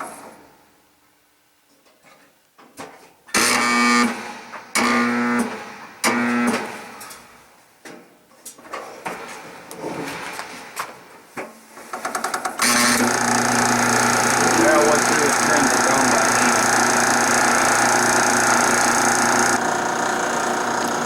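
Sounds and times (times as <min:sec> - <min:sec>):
dryer motor humming: 0:12.6 - 0:21.0.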